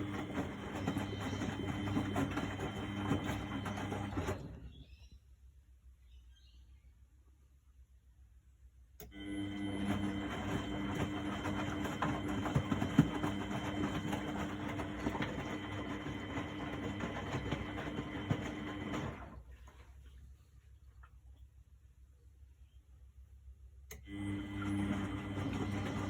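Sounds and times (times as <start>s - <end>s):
washing machine drum humming: 0.0s - 5.0s, 9.0s - 20.0s, 23.9s - 26.0s.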